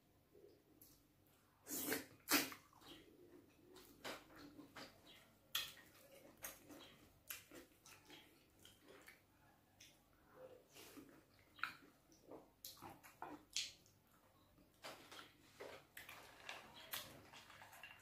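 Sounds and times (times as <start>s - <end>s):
wet chewing and lip smacks: 1.7s - 3.0s, 3.7s - 10.0s, 10.9s - 14.0s.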